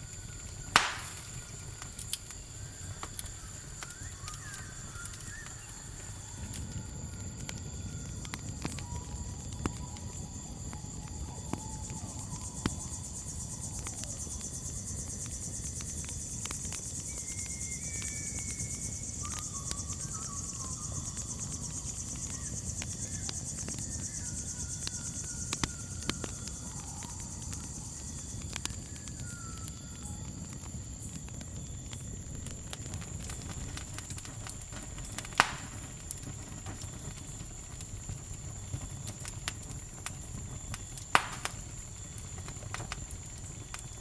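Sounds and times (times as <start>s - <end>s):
campfire crackling and popping: 0.0s - 44.0s
crickets chirring: 0.0s - 44.0s
whistled bird calls: 2.4s - 6.5s, 17.2s - 27.4s, 28.6s - 30.2s.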